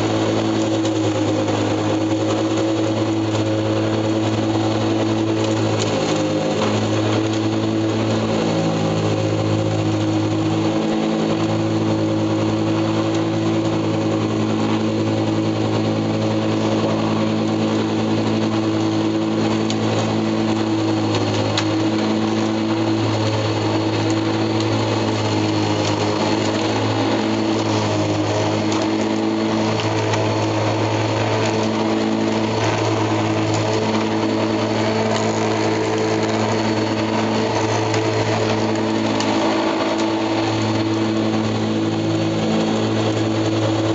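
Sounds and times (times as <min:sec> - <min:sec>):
lawn mower engine running: 0:00.0 - 0:43.9.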